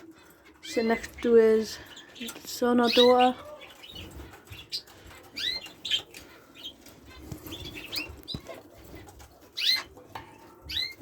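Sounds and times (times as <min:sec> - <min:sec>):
budgerigars chirping: 0:00.0 - 0:11.0.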